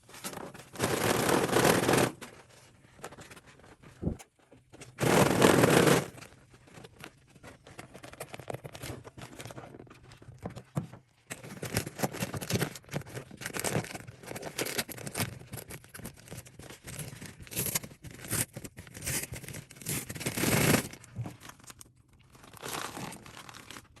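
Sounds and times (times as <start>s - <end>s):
paper bag crinkling and tearing: 0.0s - 2.4s, 5.0s - 7.1s, 11.4s - 24.0s.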